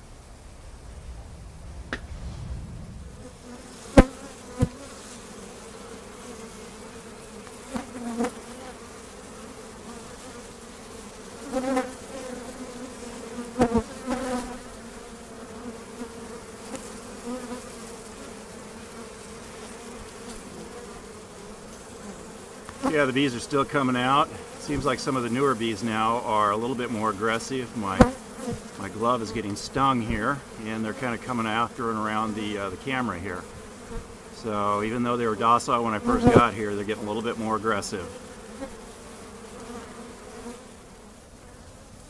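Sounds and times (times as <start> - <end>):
bees buzzing: 0.0 - 42.0
sharp taps: 1.9 - 2.1.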